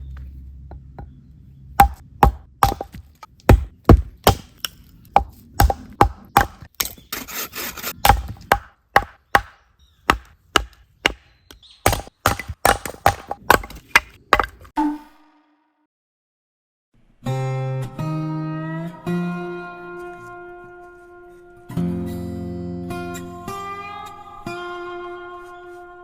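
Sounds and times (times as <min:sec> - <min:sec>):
firewood being chopped: 0:01.8 - 0:07.0, 0:08.0 - 0:14.7.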